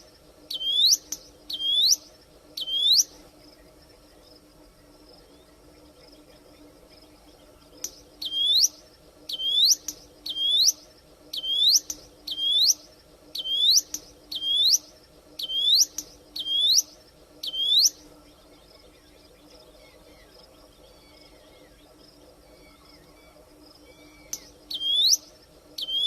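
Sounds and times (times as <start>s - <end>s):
bird singing sweeping notes: 0.5s - 3.2s, 7.9s - 10.8s, 11.4s - 26.0s.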